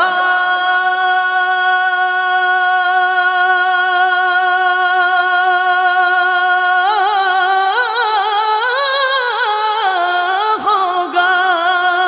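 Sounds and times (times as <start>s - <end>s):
person singing a long note: 0.0s - 8.2s.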